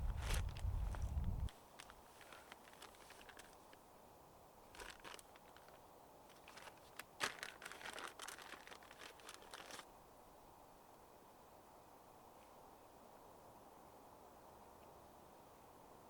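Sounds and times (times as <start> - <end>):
faint crackling and rustling: 0.0 - 3.9, 4.6 - 9.9.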